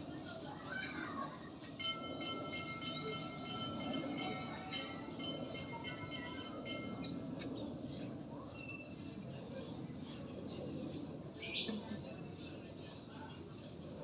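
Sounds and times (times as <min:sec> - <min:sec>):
bell ringing in rapid strikes: 0:01.8 - 0:07.2.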